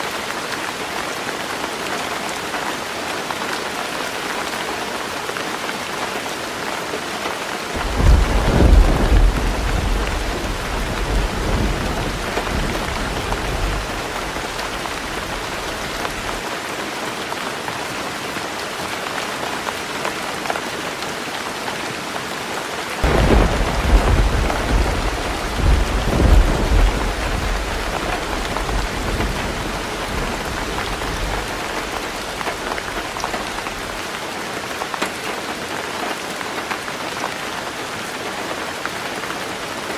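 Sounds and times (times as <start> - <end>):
heavy rain drumming on roof: 0.0 - 39.9
thunder rolling: 7.8 - 16.4, 23.0 - 34.0.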